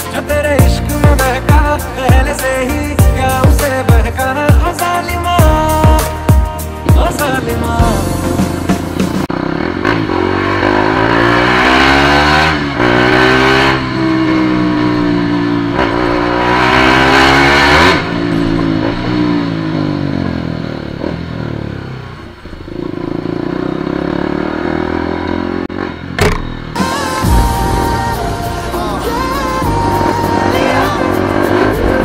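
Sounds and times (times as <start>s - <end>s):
motorcycle engine accelerating: 7.3s - 32.0s.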